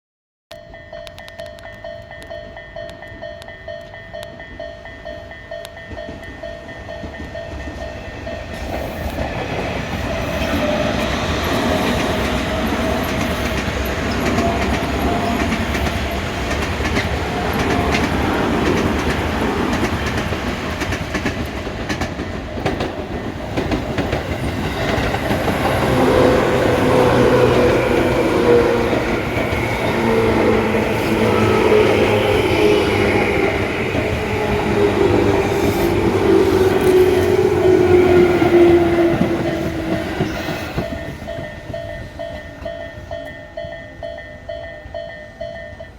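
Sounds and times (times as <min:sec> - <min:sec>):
train wheels clicking over joints: 0:05.6 - 0:43.9
level crossing alarm ringing: 0:22.3 - 0:45.8.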